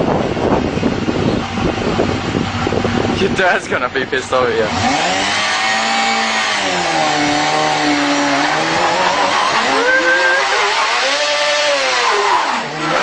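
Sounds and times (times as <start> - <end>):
small motorcycle engine revving: 4.3 - 13.0.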